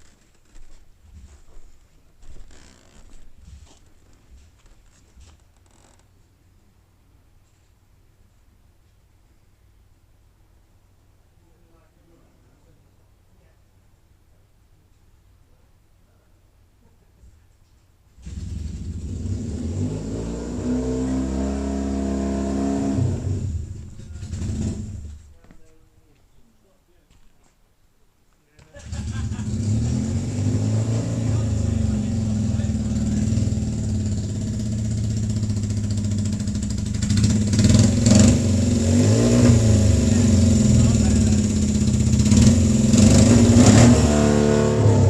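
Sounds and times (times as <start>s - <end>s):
motorcycle engine starting and revving: 18.2s - 25.3s, 28.6s - 45.0s
motorcycle engine idling: 31.3s - 38.1s, 40.0s - 43.0s.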